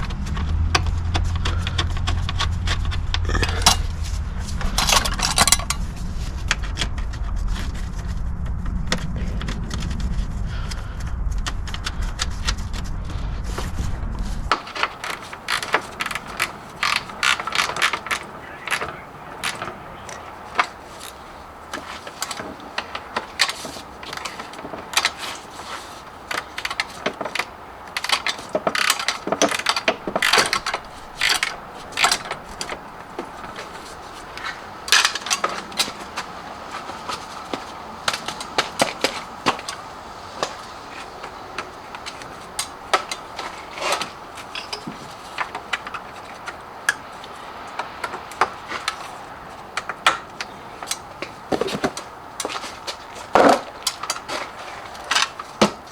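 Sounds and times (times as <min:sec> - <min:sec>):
metallic clicks and knocks: 0:14.5 - 0:55.9.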